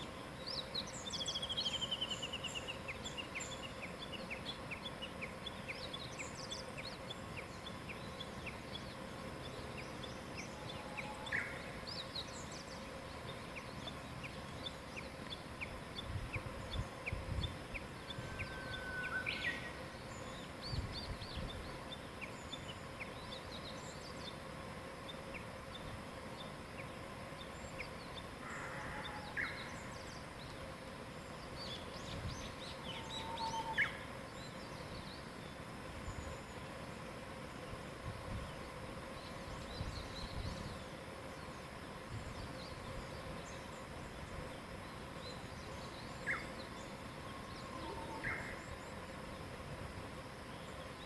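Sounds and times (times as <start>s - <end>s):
faint steady hum: 0.0s - 51.0s
birds chirping and trilling: 0.5s - 24.4s, 45.2s - 49.0s
bird whistle: 18.2s - 19.7s.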